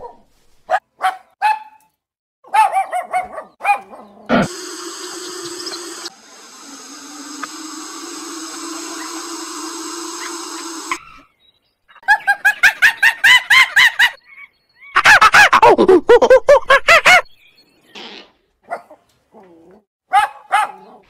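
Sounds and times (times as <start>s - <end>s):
steady hum: 4.3s - 11.0s.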